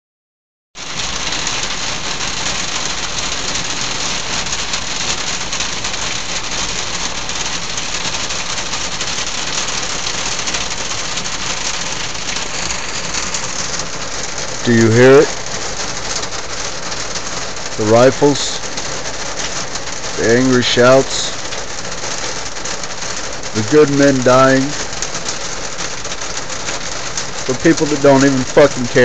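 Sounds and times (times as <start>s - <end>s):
steady rain falling: 0.8s - 29.0s.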